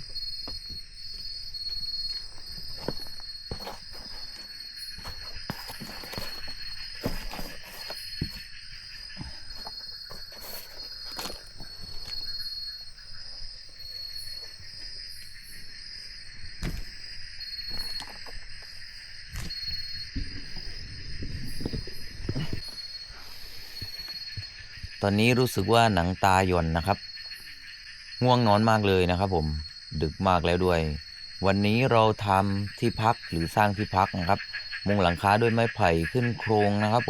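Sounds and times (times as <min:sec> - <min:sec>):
insects trilling: 0:00.0 - 0:37.0.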